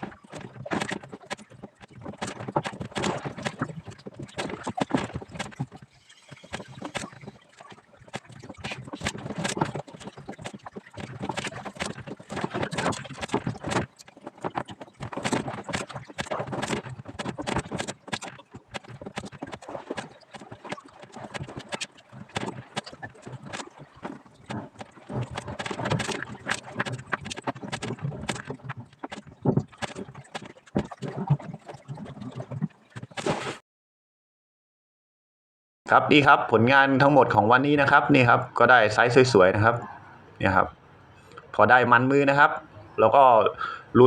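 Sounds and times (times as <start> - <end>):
fishing gear knocking and clattering: 0.0 - 33.2.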